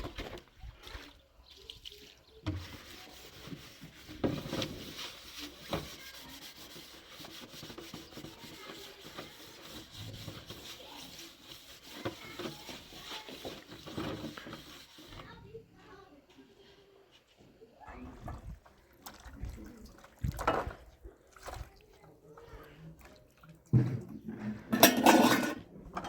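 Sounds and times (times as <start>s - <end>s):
rubbing and scraping: 2.4s - 17.5s, 23.7s - 26.0s.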